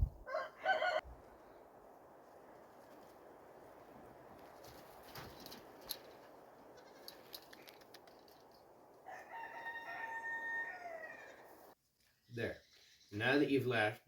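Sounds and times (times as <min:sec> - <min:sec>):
rooster crowing: 0:00.2 - 0:01.1, 0:09.0 - 0:11.7.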